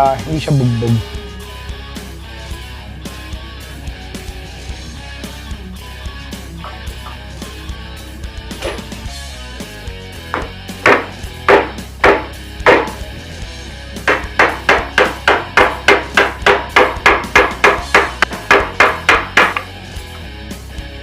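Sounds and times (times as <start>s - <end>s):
background music: 0.0s - 21.0s
hammer knocking on metal tank: 10.3s - 13.0s, 14.1s - 19.7s.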